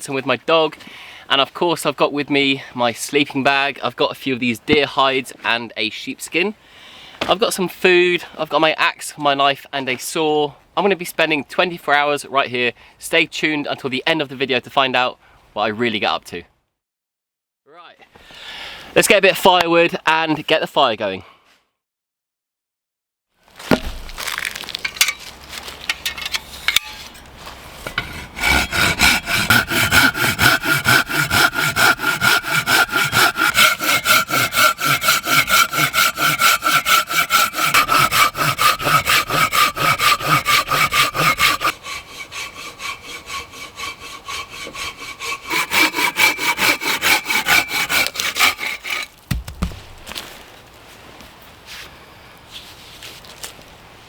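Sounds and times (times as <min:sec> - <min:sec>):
hand saw cutting wood: 0:26.4 - 0:50.1.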